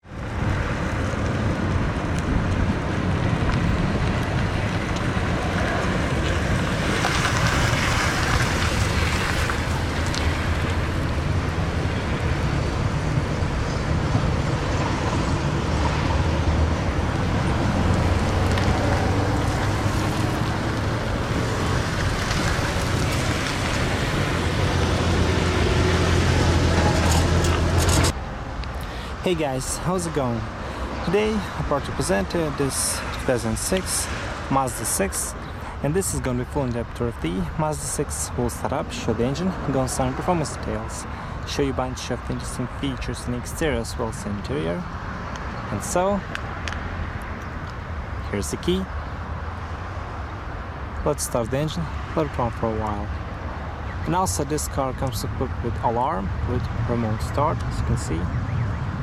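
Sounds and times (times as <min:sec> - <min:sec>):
car engine drone: 0:00.0 - 0:41.6
road and wind noise: 0:00.0 - 0:59.0.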